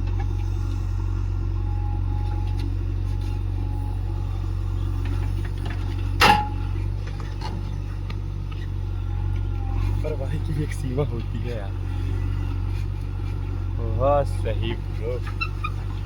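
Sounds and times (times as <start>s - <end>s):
heavy diesel engine droning: 0.0s - 16.0s
sharp metal clank: 6.2s - 6.6s.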